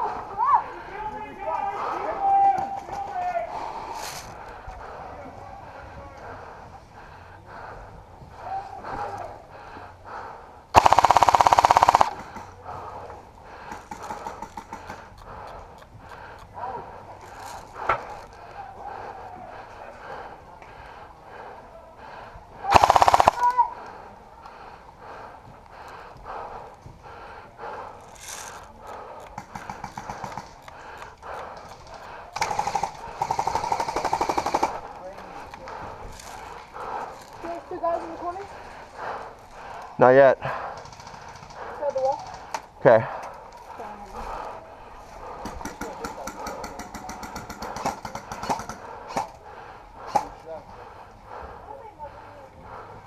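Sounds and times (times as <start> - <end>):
airsoft gun full-auto burst: 10.8 - 12.3, 22.7 - 23.6, 32.4 - 34.8.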